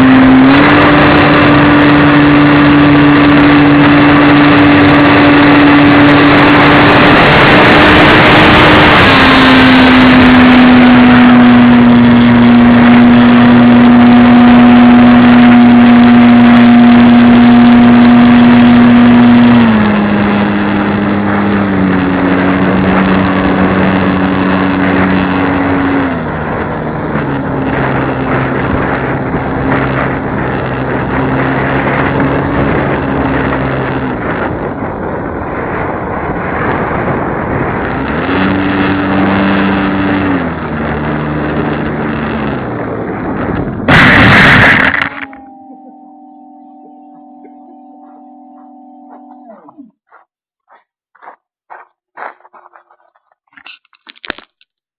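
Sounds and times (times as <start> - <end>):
model airplane motor: 9.5 - 26.6.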